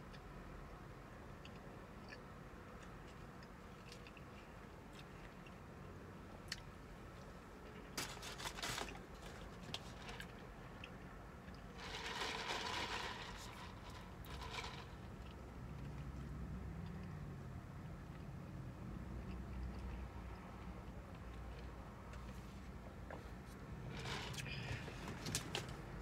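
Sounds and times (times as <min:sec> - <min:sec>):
chewing and crunching food: 0:01.4 - 0:17.3, 0:19.0 - 0:22.4
crackly noise: 0:01.4 - 0:17.3.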